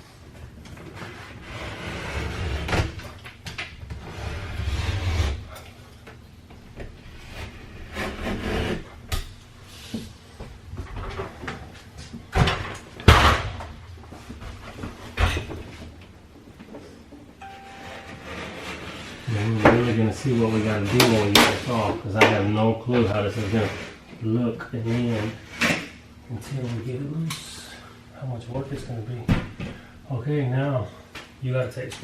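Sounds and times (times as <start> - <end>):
blade scraping caulking: 0.9 - 2.9, 3.9 - 5.7, 7.0 - 8.9, 18.2 - 21.9, 23.1 - 24.0.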